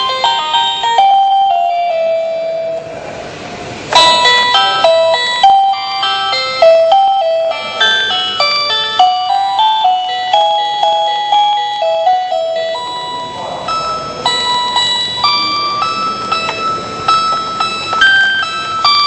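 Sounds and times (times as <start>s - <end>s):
toy organ playing beepy melody: 0.0s - 2.9s, 3.9s - 19.0s.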